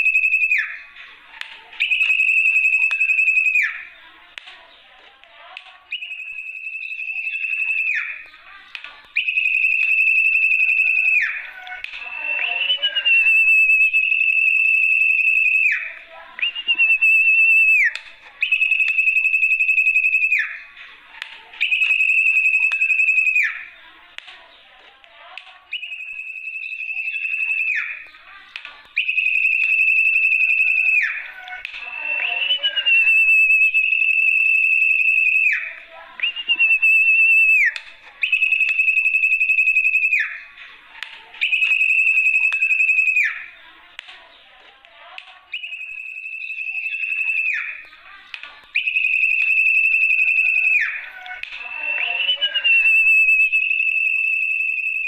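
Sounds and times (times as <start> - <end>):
bird trilling whistles: 25.7 - 28.0, 29.0 - 40.4, 48.8 - 55.0.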